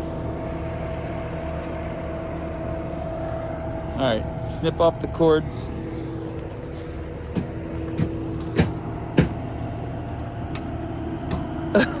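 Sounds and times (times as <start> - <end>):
mulcher engine running: 0.0 - 12.0
sharp knocks and clicks: 7.3 - 9.4.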